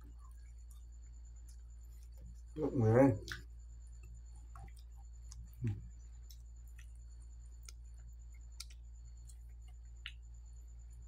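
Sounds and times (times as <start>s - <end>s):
steady low hum: 0.0s - 11.0s
chewing mouth clicks and smacks: 3.2s - 10.6s.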